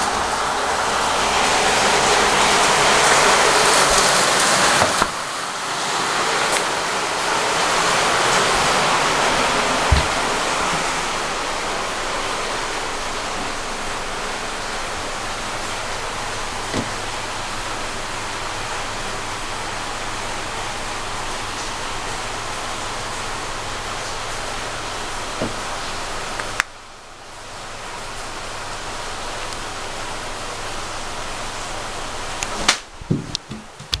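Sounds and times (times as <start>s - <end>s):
heavy rain: 0.0s - 34.0s
dull knocks: 8.6s - 11.2s, 33.0s - 34.0s
low thump: 9.8s - 10.9s.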